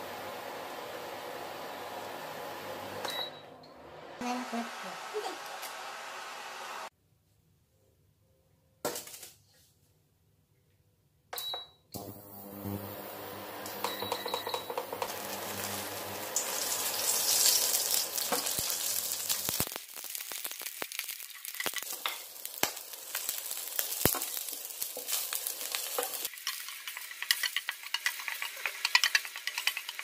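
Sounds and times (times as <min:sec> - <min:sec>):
garlic sizzling in hot oil: 0:14.8 - 0:30.0.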